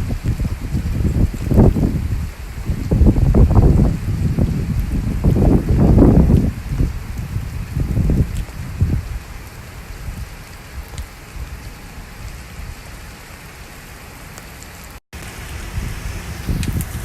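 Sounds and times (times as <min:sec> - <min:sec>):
heavy rain hissing: 0:00.0 - 0:17.0
low rumbles: 0:15.2 - 0:17.0.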